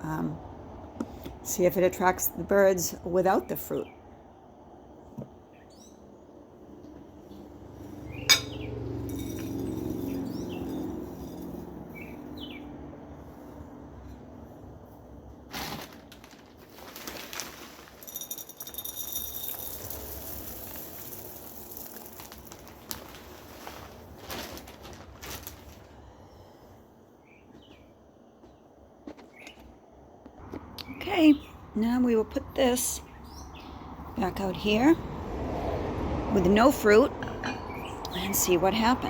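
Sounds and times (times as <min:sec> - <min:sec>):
low traffic hum: 0:00.0 - 0:39.0
small birds chirping and singing: 0:10.0 - 0:10.8, 0:11.9 - 0:12.7, 0:32.9 - 0:33.8
rustling: 0:15.4 - 0:26.5.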